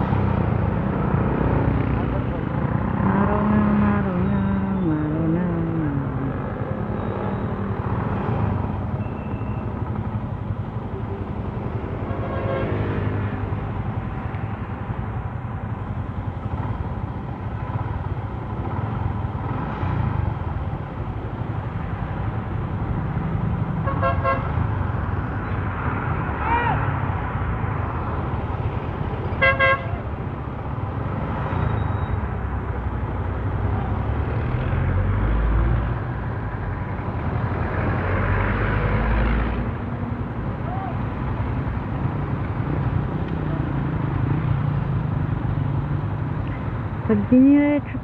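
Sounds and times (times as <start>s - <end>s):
motorcycle engine: 0.0s - 26.0s
road noise: 0.0s - 48.0s.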